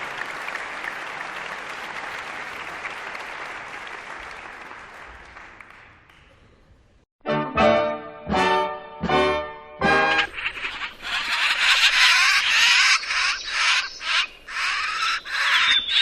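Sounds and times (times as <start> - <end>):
audience applauding: 0.0 - 6.5
music with sustained notes: 7.2 - 10.3.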